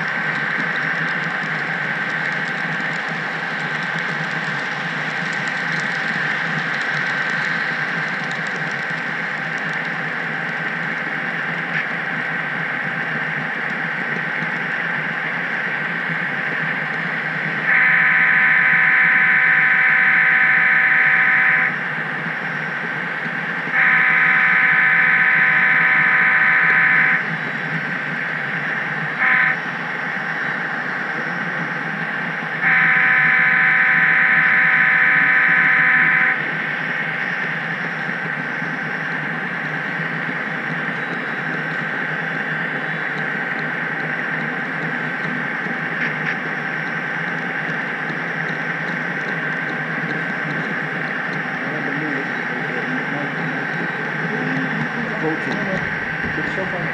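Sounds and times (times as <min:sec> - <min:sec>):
model train rolling on track: 0:00.0 - 0:56.9
model train horn blasts: 0:17.7 - 0:21.8, 0:23.7 - 0:27.2, 0:29.2 - 0:29.6, 0:32.6 - 0:36.4.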